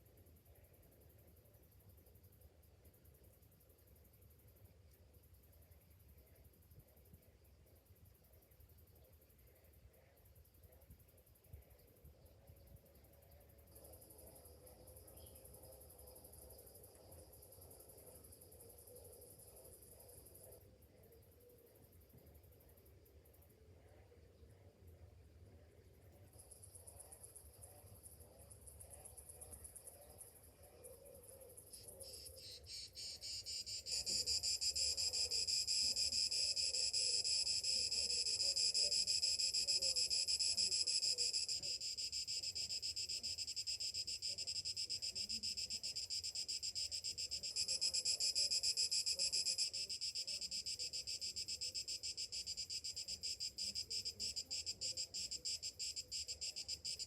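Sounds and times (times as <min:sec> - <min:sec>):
cicadas buzzing: 0:31.8 - 0:57.0.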